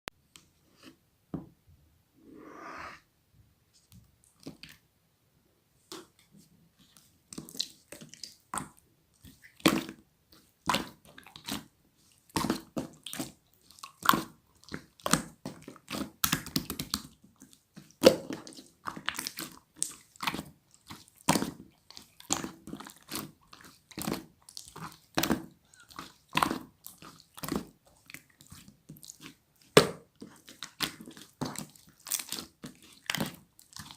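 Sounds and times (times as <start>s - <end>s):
slime squelching and popping: 10.6s - 33.9s.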